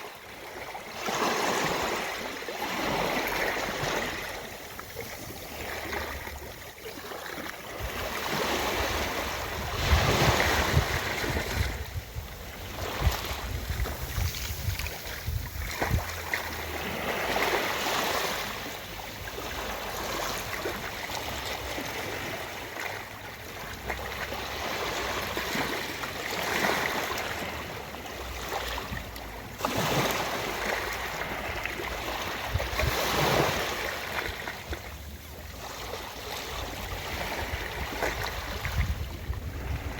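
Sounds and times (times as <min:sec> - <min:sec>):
ocean surf on a beach: 0:00.0 - 0:34.7.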